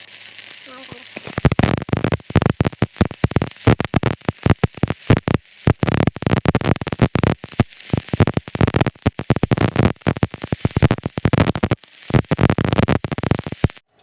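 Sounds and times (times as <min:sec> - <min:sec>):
welding arc crackling: 0:00.0 - 0:13.9.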